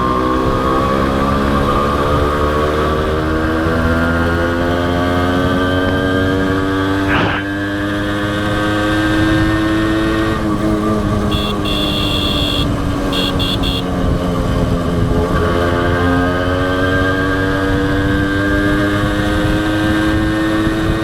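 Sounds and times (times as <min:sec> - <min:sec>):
motorcycle engine under way: 0:00.0 - 0:21.0
horn beeping: 0:11.2 - 0:14.0.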